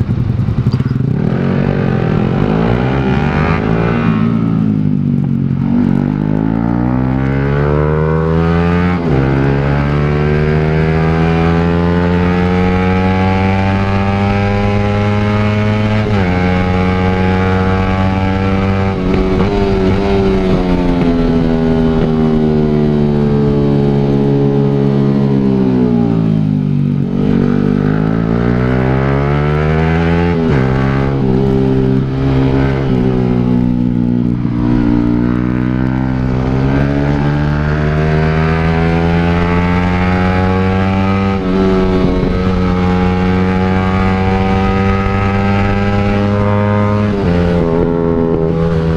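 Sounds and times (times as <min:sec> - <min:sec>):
motorcycle accelerating through gears: 0:00.0 - 0:48.9.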